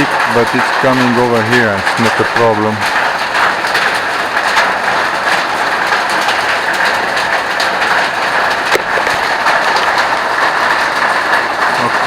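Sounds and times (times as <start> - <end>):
water dripping ticks: 0.0 - 12.0.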